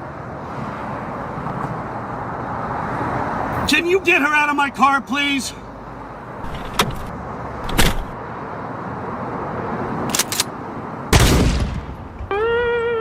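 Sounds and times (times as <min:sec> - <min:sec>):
sharp bangs: 0:11.1 - 0:12.3.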